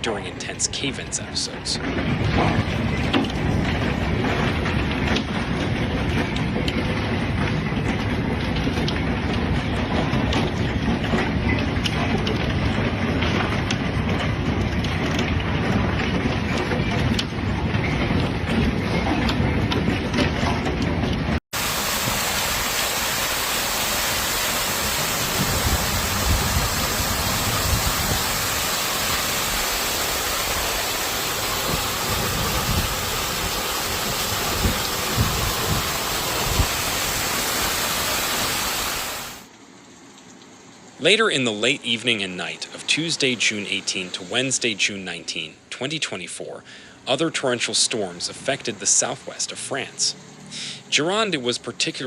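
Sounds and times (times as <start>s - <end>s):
torrential rain rushing: 0.0s - 44.4s
heavy rain hiss: 21.6s - 39.5s, 46.6s - 52.0s.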